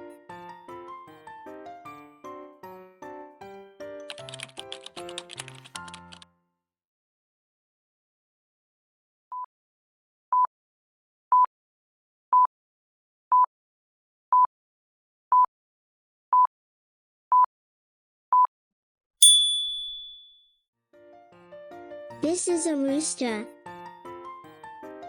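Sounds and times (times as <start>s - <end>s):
bright bell ding: 19.2s - 20.4s.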